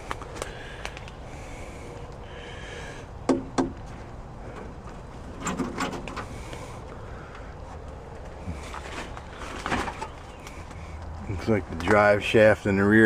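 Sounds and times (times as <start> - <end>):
sharp knocks: 3.3 - 3.8.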